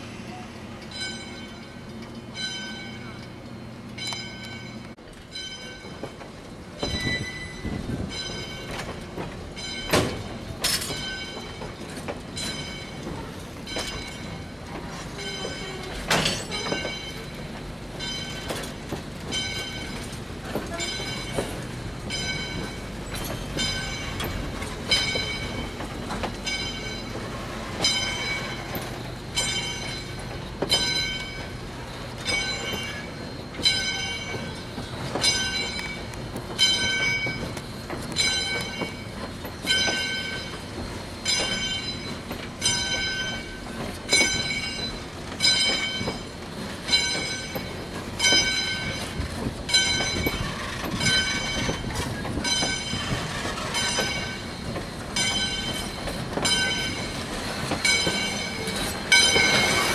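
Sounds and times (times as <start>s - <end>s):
crossing signal bell ringing: 0.8s - 6.1s, 9.5s - 11.7s, 15.2s - 18.7s, 20.7s - 25.8s, 26.4s - 27.2s, 29.4s - 31.6s, 32.2s - 37.5s, 38.1s - 46.3s, 49.7s - 57.2s, 57.8s - 59.9s
train wheels clunking over rail joints: 0.8s - 59.9s.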